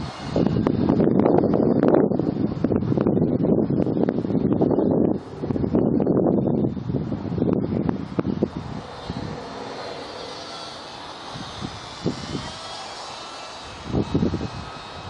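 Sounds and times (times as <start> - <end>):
wind buffeting microphone: 0.0 - 15.0
model plane motor whining: 8.0 - 15.0.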